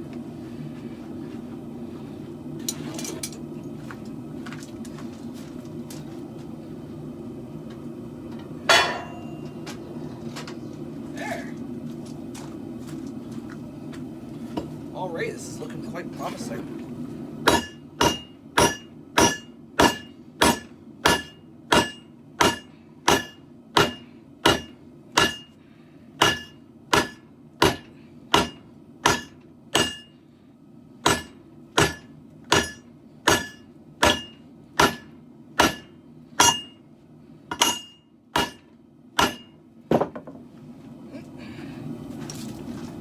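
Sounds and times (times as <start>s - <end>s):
hammer striking steel on anvil: 8.7s - 9.6s, 17.5s - 25.6s, 26.2s - 30.1s, 31.0s - 36.8s, 37.5s - 40.1s.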